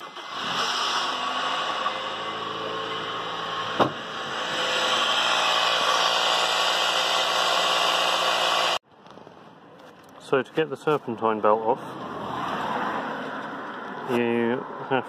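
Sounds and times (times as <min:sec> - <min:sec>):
car engine starting and idling: 0:00.0 - 0:08.5.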